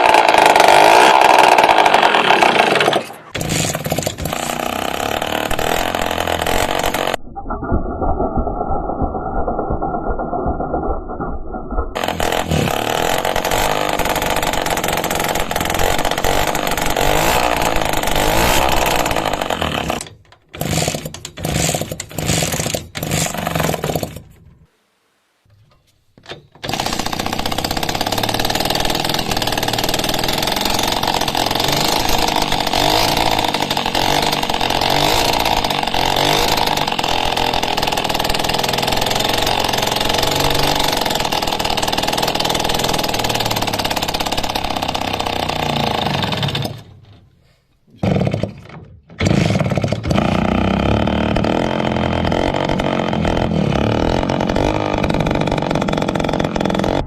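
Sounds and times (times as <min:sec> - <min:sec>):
engine running and stuttering: 0:00.0 - 0:24.2, 0:26.6 - 0:47.1, 0:48.0 - 0:57.0.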